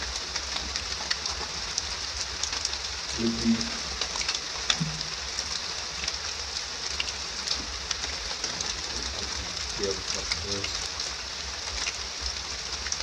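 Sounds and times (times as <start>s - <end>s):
rain hiss: 0.0s - 13.0s
raindrops ticking: 0.0s - 13.0s
faint low voice-like sounds: 3.1s - 3.9s, 8.7s - 10.8s.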